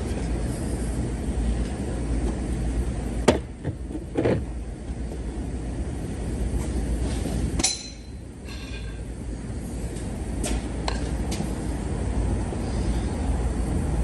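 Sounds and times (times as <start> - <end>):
metallic tap with ring: 7.6 - 8.1.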